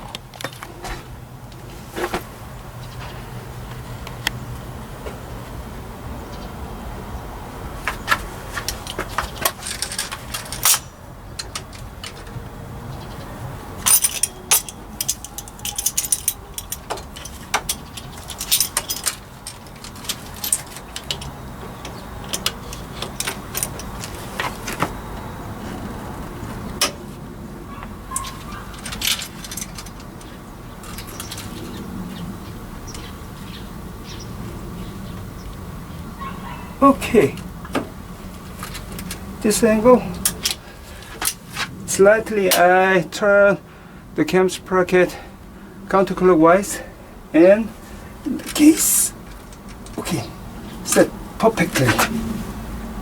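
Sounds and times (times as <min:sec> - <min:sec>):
metallic clicks of hand tools: 0:08.6 - 0:12.3.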